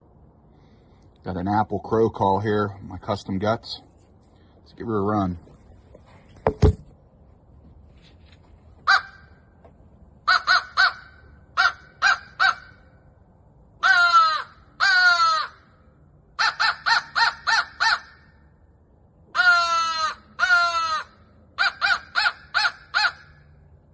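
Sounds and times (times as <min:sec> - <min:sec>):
crow call caws: 0:08.8 - 0:09.4, 0:10.2 - 0:12.9, 0:13.8 - 0:15.8, 0:16.4 - 0:18.4, 0:19.3 - 0:23.6.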